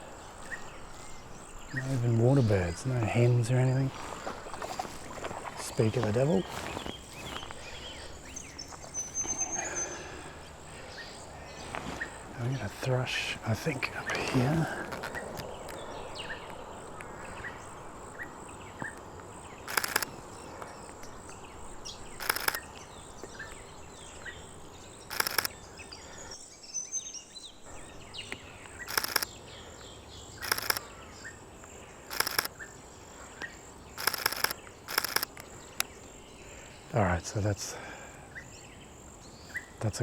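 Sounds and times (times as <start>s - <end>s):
birds chirping: 0.0s - 40.0s
insects humming: 0.0s - 40.0s
camera shutter clicking: 19.7s - 20.1s, 22.2s - 22.7s, 25.1s - 25.6s, 28.9s - 29.3s, 30.4s - 30.8s, 32.1s - 32.5s, 34.0s - 35.5s.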